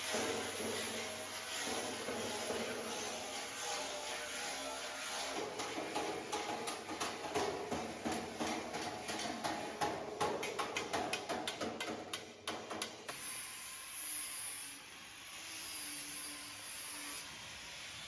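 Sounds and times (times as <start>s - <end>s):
sharp knocks on sheet metal: 5.4s - 13.1s.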